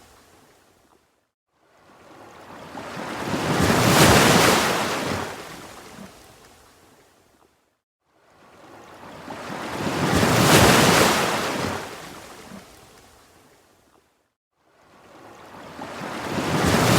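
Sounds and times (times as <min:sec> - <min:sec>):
ocean wave washing in: 0:15.7 - 0:16.9.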